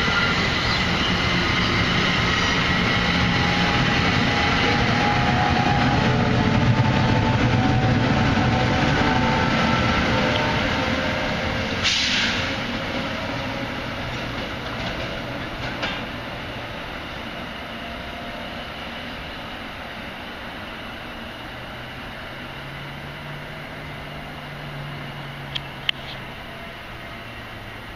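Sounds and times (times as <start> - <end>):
train wheels rumbling on rail: 0.0 - 27.9
sharp clack of train wheels: 11.6 - 17.1.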